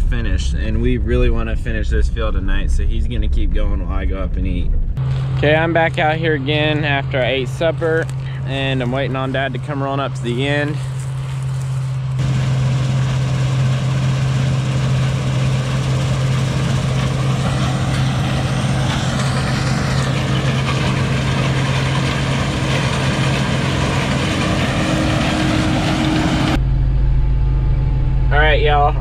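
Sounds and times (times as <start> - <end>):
large engine droning: 0.0 - 29.0.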